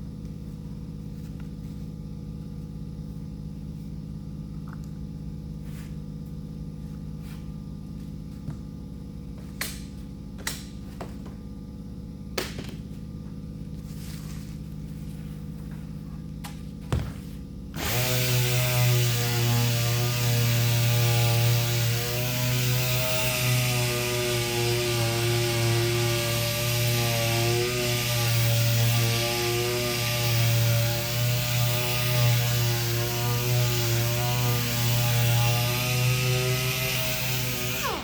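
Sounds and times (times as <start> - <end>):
low steady hum: 0.0 - 17.8
electric sander running: 17.8 - 38.0.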